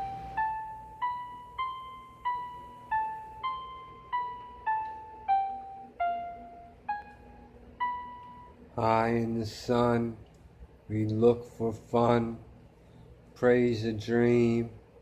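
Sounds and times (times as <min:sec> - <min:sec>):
electric piano melody: 0:00.0 - 0:09.4.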